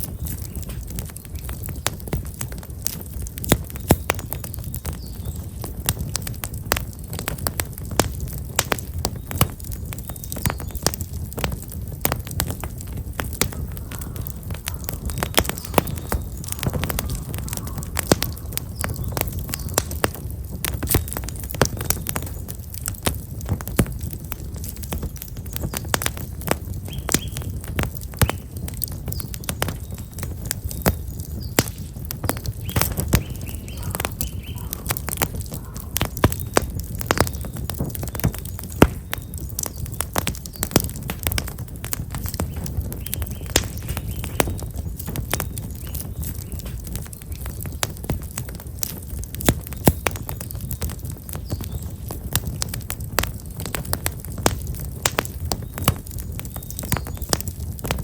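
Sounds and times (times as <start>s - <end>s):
fire low rumble: 0.0s - 58.0s
firewood crackling and popping: 0.0s - 58.0s
small birds chirping: 0.0s - 58.0s.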